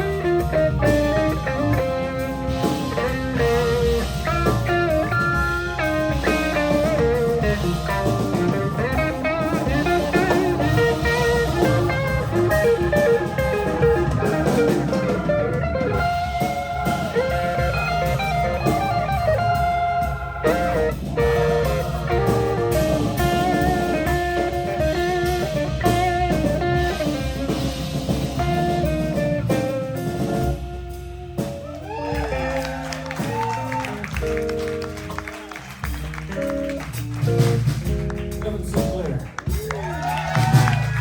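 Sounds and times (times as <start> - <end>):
electric guitar solo: 0.0 - 27.6, 28.4 - 38.4, 39.4 - 41.0
drum kit: 0.0 - 41.0.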